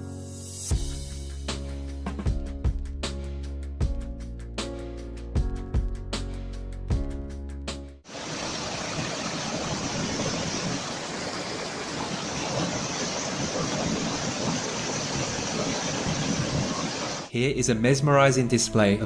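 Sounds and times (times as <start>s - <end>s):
steady rushing noise: 8.1s - 17.3s.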